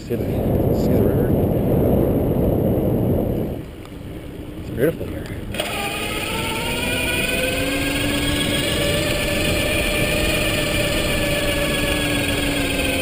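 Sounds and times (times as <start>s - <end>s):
rushing noise of riding: 0.0s - 13.0s
electric bike motor whining: 5.5s - 13.0s.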